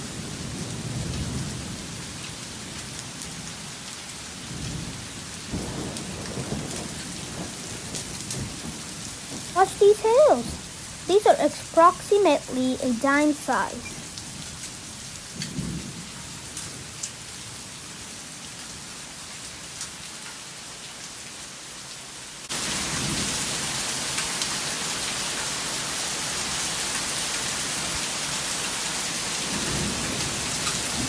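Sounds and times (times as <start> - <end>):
hailstones ticking: 5.5 - 17.2, 29.3 - 31.0
heavy rain hissing: 8.9 - 14.4.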